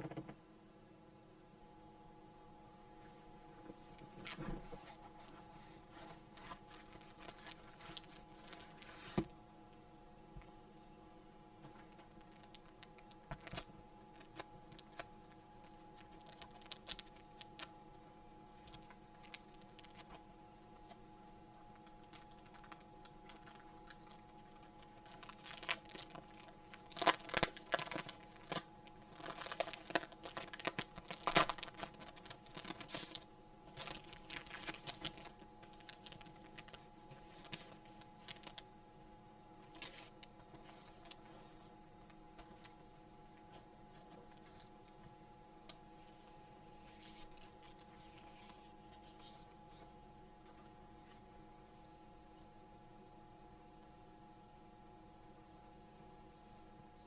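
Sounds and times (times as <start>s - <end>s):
faint steady hum: 0.0s - 57.0s
crinkling: 3.7s - 9.3s, 11.7s - 20.2s, 20.8s - 38.7s, 39.6s - 51.2s.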